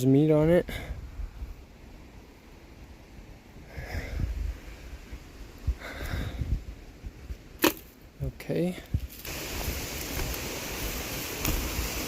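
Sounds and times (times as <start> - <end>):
person breathing hard through nose: 3.6 - 5.0, 5.7 - 6.7.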